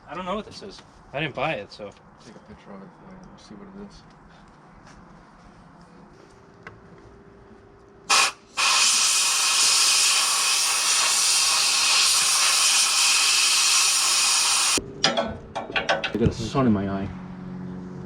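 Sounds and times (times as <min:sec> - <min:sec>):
compressed air blowgun hissing: 0:08.1 - 0:14.8.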